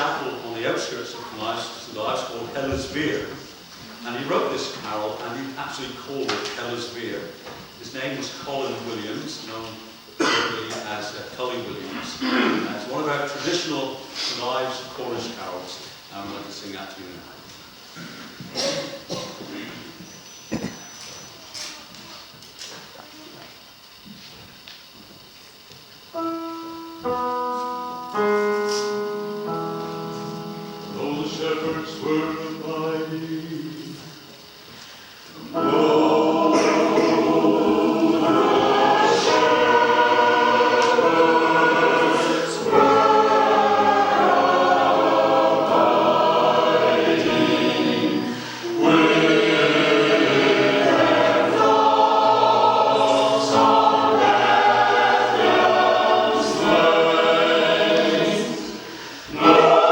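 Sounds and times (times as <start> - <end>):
choir singing a carol: 0.0 - 17.1, 17.7 - 21.4, 26.1 - 59.9
keyboard chords: 26.1 - 34.5, 35.4 - 59.9.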